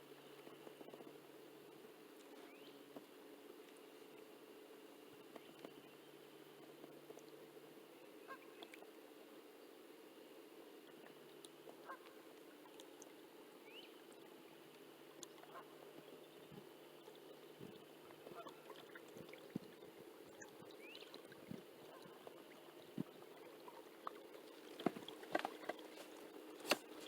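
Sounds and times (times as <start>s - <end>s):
faint steady hum: 0.0s - 27.0s
small clicks and knocks: 24.7s - 27.0s.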